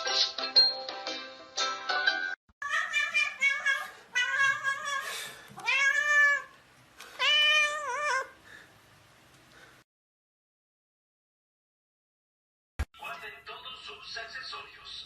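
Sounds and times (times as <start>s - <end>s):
cat meowing: 2.6s - 6.6s, 7.2s - 8.4s.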